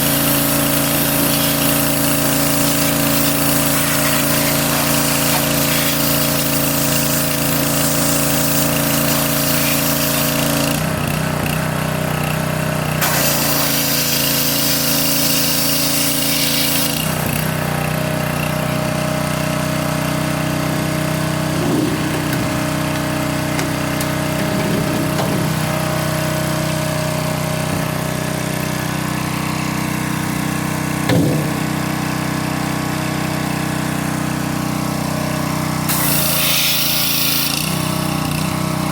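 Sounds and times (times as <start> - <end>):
loud hiss: 0.1 - 10.4, 13.0 - 16.9
machine humming: 20.3 - 28.6.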